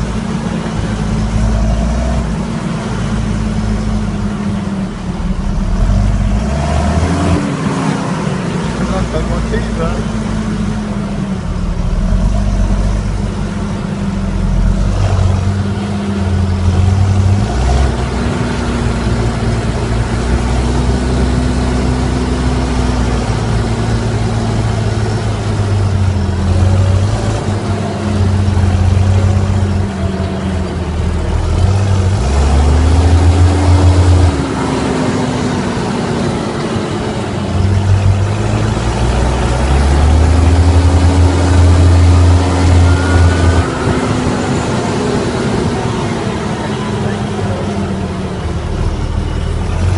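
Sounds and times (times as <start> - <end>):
unmuffled tractor diesel engine revving: 0.0 - 49.9.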